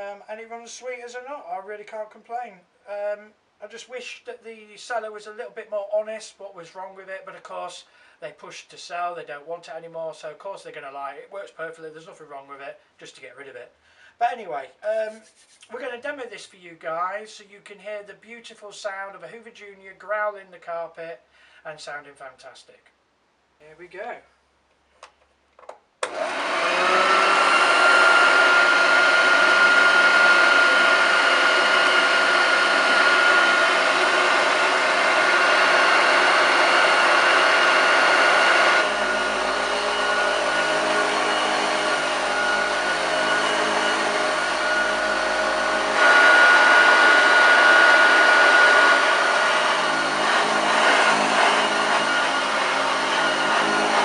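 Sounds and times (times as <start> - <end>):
vacuum cleaner motor whine: 26.0 - 54.0.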